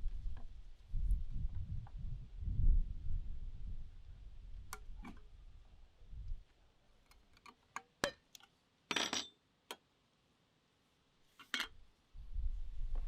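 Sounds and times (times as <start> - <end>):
wind rumble on microphone: 0.0 - 6.4, 12.2 - 13.0.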